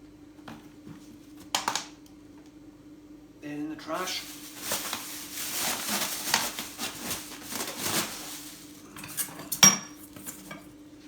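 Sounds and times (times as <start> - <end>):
crockery and metalware clinking: 8.9 - 10.6.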